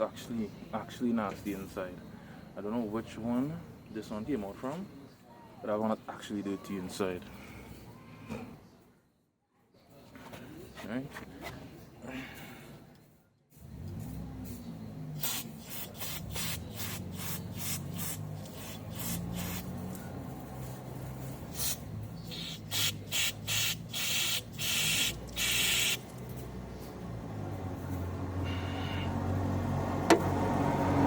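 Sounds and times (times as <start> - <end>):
aerosol spray hissing bursts: 15.2 - 19.9, 21.5 - 26.0.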